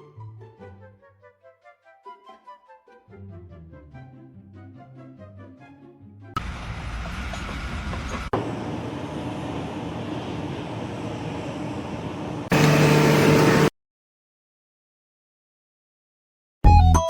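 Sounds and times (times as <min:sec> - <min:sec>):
mechanical rumble of machine: 0:06.4 - 0:13.7.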